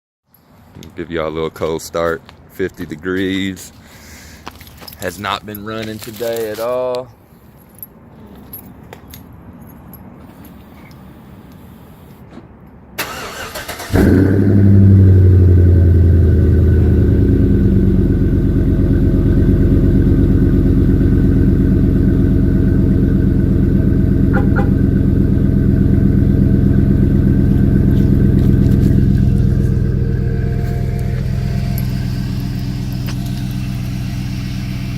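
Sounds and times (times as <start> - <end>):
engine flaring then idling fast: 13.1 - 34.9.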